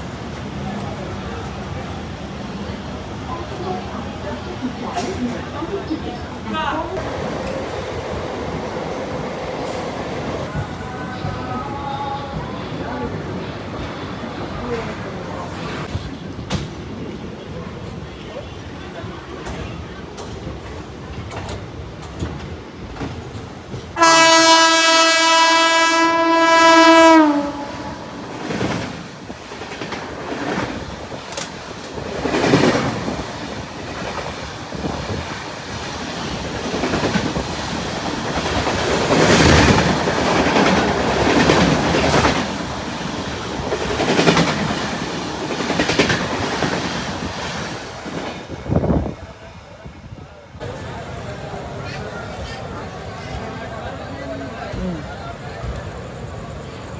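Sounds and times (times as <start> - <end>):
train rail clatter and rumble: 0.0 - 56.9
locomotive horn blast: 24.0 - 28.3.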